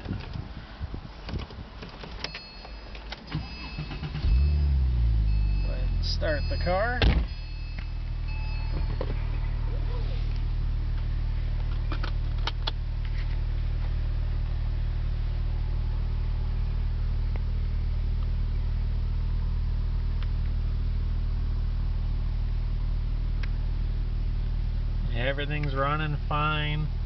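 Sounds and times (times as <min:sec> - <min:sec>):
car engine idling: 0:02.6 - 0:27.0.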